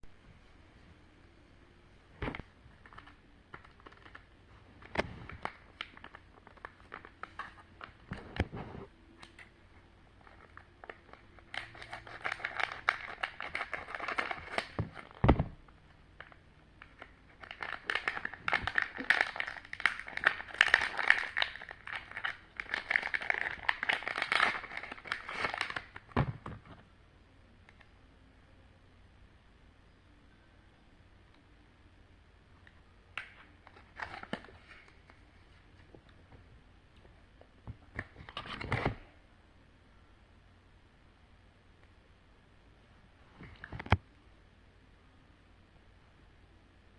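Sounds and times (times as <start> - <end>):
plastic candy wrapper crinkling: 2.8 - 8.5, 10.2 - 15.2, 16.2 - 26.2, 33.2 - 35.3.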